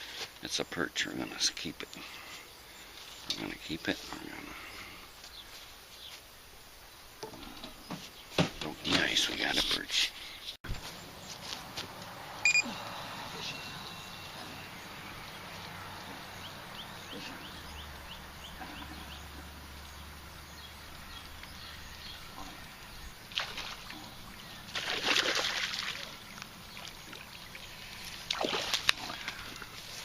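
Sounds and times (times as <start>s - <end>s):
outdoor background noise: 0.0s - 30.0s
water splashing and sloshing: 22.8s - 30.0s.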